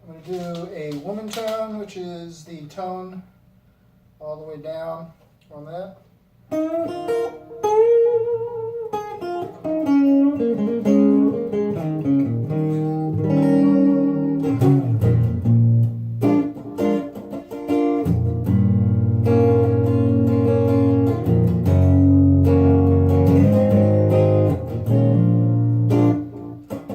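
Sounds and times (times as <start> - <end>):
mellow clean electric guitar: 6.5 - 26.9.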